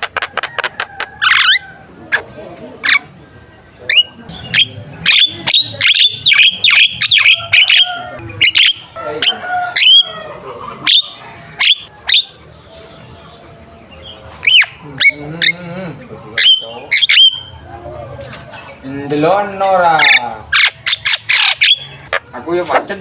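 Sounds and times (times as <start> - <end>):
myna whistles and squawks: 3.9 - 9.0, 16.4 - 17.6.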